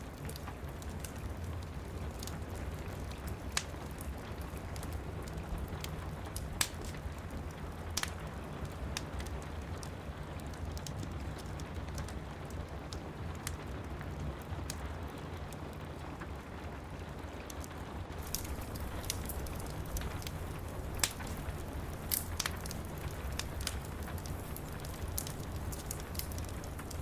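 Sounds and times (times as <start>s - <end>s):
fireplace fire crackling: 0.0s - 27.0s
steady rain: 0.0s - 27.0s
sharp fire pops: 2.1s - 7.2s, 18.1s - 27.0s.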